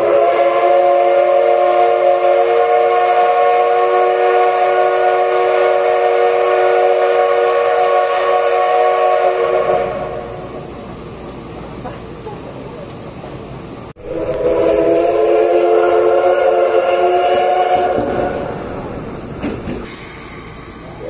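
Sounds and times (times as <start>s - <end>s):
steam whistle blast: 0.0s - 10.5s, 14.0s - 18.6s
steam hiss: 0.0s - 21.0s.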